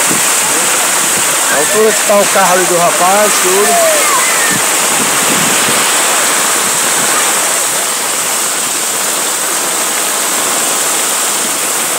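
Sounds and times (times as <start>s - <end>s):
heavy rain: 0.0s - 11.9s
rushing floodwater: 0.0s - 11.9s.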